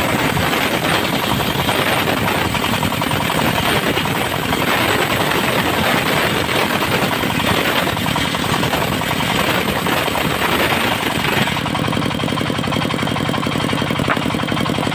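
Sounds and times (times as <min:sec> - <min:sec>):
circular saw cutting wood: 0:00.0 - 0:14.9
diesel engine running: 0:00.0 - 0:14.9.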